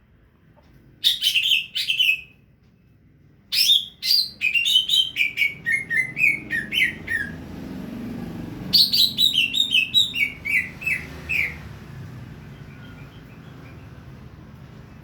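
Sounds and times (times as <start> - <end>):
songbird chirping: 1.0 - 7.4, 8.6 - 15.0.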